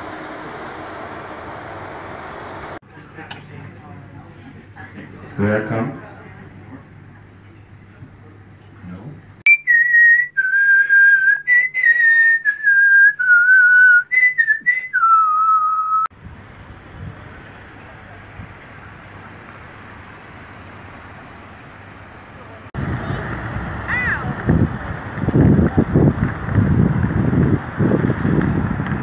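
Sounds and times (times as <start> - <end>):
person whistling a slow tune: 9.5 - 16.1.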